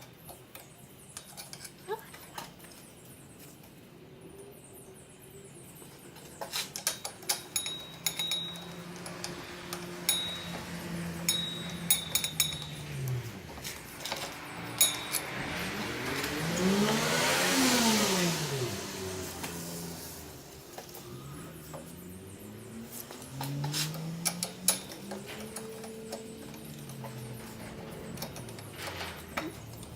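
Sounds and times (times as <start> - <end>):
metallic clicks and clinks: 6.2 - 17.0, 20.7 - 29.9
engine pitch rising and falling: 8.0 - 29.9.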